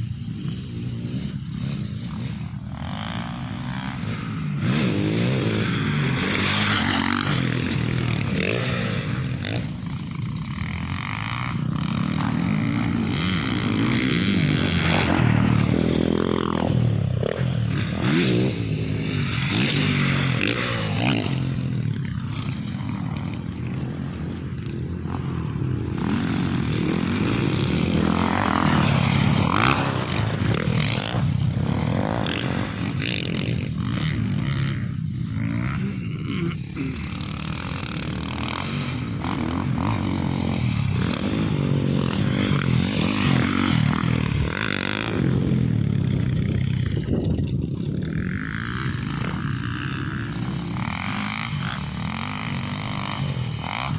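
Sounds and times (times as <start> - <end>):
off-road motorcycle engine: 0.0 - 53.9
rattling and scraping over rough ground: 4.6 - 53.9.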